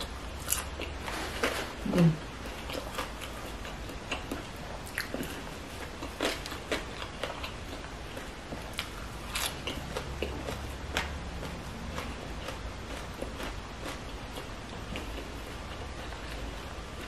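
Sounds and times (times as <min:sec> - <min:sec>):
person chewing food: 0:00.0 - 0:17.0
crisp crunches: 0:08.7 - 0:09.8.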